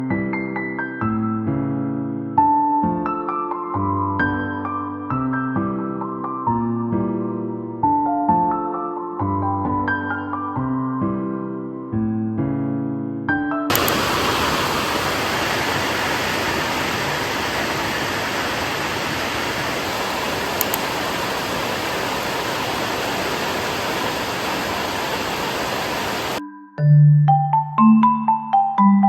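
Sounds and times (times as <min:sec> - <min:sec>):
heavy rain: 0:13.7 - 0:26.4.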